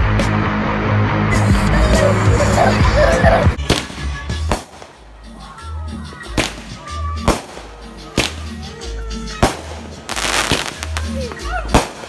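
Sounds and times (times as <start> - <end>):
music with slow bass beat: 0.0 - 12.0
fireworks cracking: 3.6 - 5.1, 6.3 - 8.8, 9.4 - 12.0.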